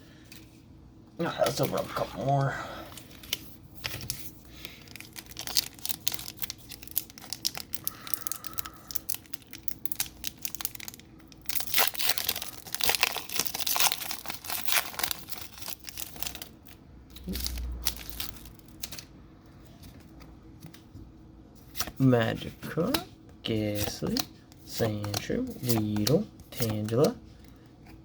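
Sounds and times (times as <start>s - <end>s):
foil wrapper crinkling and tearing: 2.9s - 19.1s.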